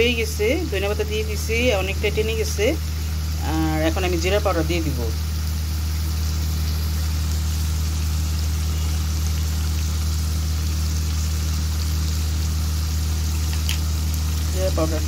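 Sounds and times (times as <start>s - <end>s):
curry bubbling and sizzling: 0.0s - 15.0s.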